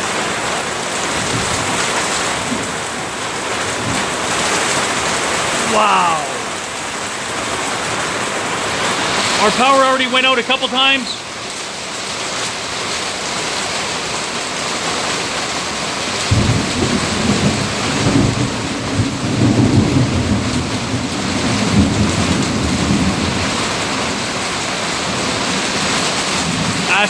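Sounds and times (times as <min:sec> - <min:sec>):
heavy rain pouring: 0:00.0 - 0:27.0
thunder rumbling: 0:16.2 - 0:24.1.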